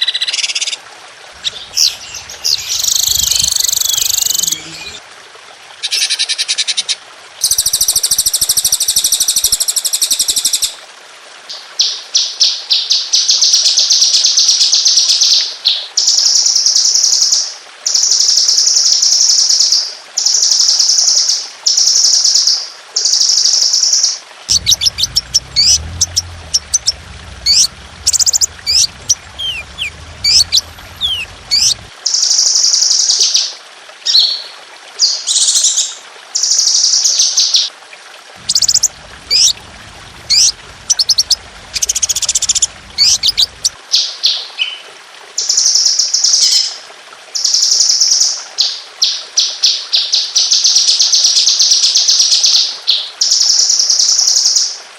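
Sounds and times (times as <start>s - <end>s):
faint low hum: 1.4s - 5.0s, 24.5s - 31.9s, 38.4s - 43.8s
sharp bird chirps: 1.4s - 5.0s
songbirds trilling: 1.4s - 5.0s, 24.5s - 31.9s, 38.4s - 43.8s.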